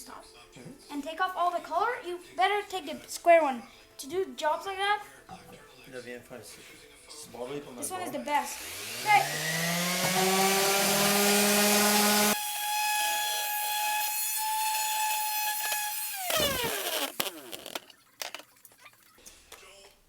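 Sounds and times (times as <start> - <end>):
sander motor whining: 8.5 - 17.4
power sander grinding wood: 8.5 - 17.5.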